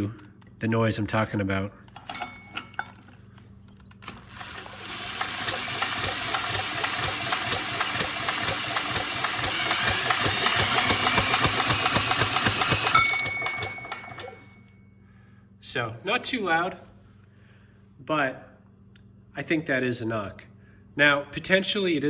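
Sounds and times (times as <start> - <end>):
engine cranking clatter: 3.9 - 14.6.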